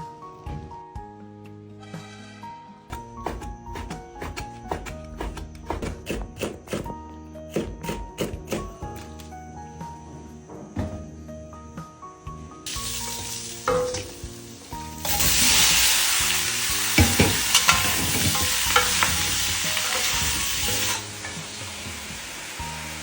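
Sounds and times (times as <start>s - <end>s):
background music: 0.0s - 23.0s
food sizzling in a hot pan: 12.7s - 23.0s
spatula knocking against pan: 17.0s - 20.6s.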